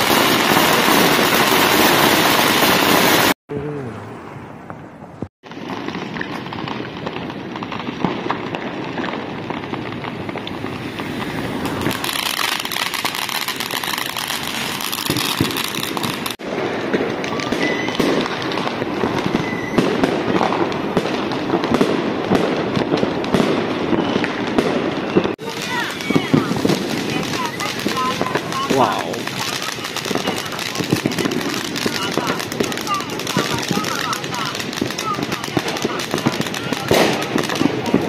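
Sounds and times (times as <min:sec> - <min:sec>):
fireworks crackling and popping: 0:00.0 - 0:03.4, 0:04.6 - 0:38.0
sharp firework bangs: 0:00.0 - 0:03.4, 0:05.4 - 0:38.0
firework whistles: 0:10.3 - 0:16.4, 0:17.0 - 0:20.8, 0:23.6 - 0:38.0.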